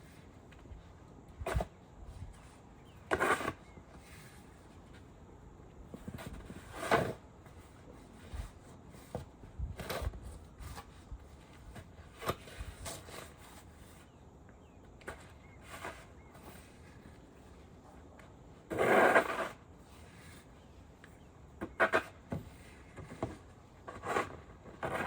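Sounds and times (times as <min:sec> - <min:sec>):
low steady background noise: 0:00.0 - 0:25.0.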